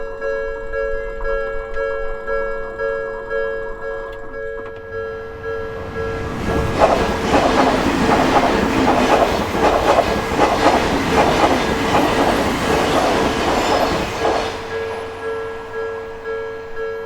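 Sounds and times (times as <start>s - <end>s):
crossing warning bell: 0.0s - 17.0s
train wheels clattering over rails: 4.8s - 16.2s.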